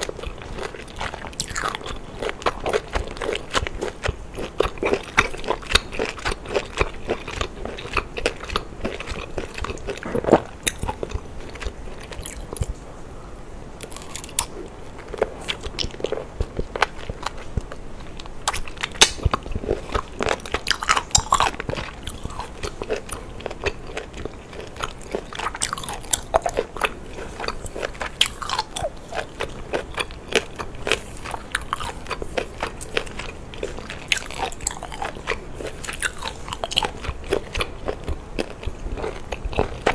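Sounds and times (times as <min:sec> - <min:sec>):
biting and chewing octopus: 0:00.0 - 0:12.8, 0:13.8 - 0:39.9.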